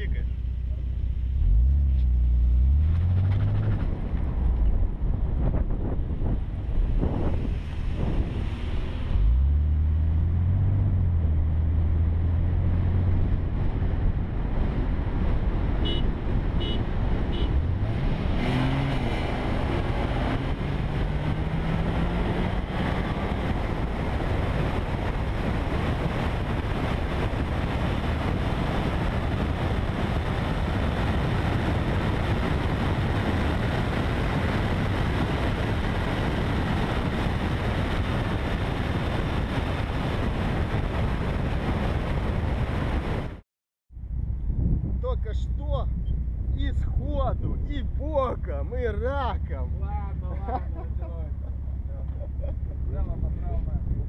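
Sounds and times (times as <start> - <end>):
wind and road noise: 0.0 - 54.0
car engine revving: 0.6 - 5.5, 6.2 - 39.1.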